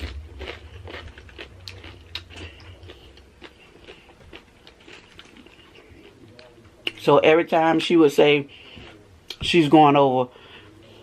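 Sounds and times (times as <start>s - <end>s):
crunchy chewing of chips: 0.0s - 7.0s.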